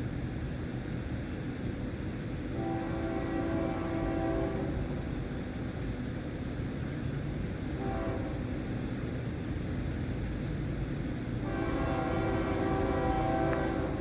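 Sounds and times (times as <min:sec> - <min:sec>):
freight train rumbling past: 0:00.0 - 0:14.0
locomotive horn blast: 0:02.5 - 0:05.1, 0:07.8 - 0:08.5, 0:11.4 - 0:14.0.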